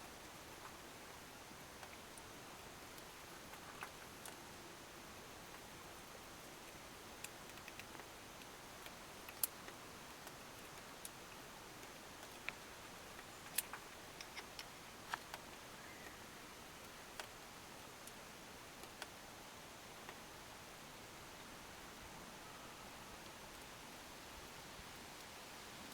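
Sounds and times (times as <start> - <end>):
steady low hiss: 0.0 - 25.9
small clicks and taps: 1.8 - 2.3, 5.4 - 16.2, 16.8 - 17.4, 18.8 - 19.2.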